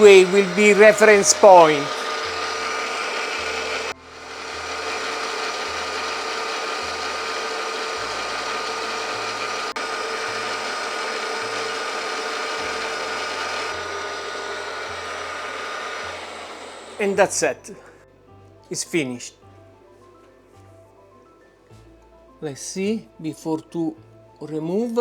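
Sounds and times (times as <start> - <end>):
milling machine running: 0.0 - 17.4.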